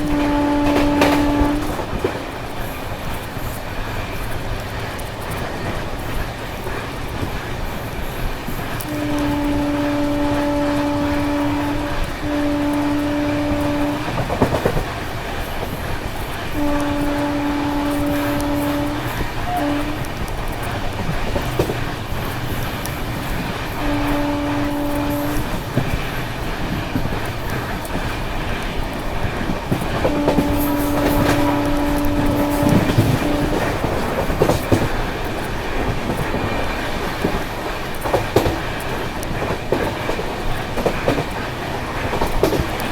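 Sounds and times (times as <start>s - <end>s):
locomotive horn blasts: 0.0s - 1.9s, 8.9s - 14.4s, 16.5s - 20.6s, 23.6s - 26.0s, 29.8s - 34.6s
train rumbling at speed: 0.0s - 42.9s.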